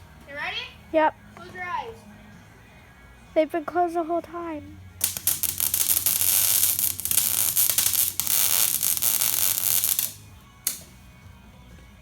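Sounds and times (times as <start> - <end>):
arc welder crackling and sizzling: 5.0 - 11.0.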